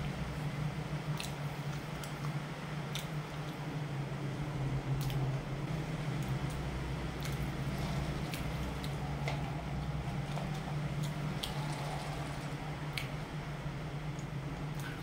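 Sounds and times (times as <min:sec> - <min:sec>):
steady low hum: 0:00.0 - 0:15.0
wet chewing clicks: 0:01.1 - 0:03.6.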